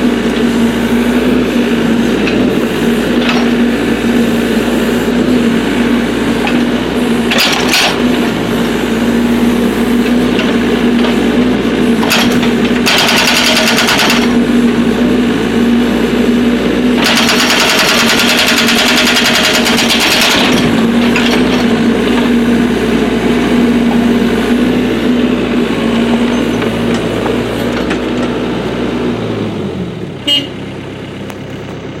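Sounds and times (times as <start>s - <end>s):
excavator diesel engine running: 0.0s - 32.0s
hydraulic breaker hammering: 6.3s - 8.9s, 9.5s - 14.8s, 16.9s - 22.4s.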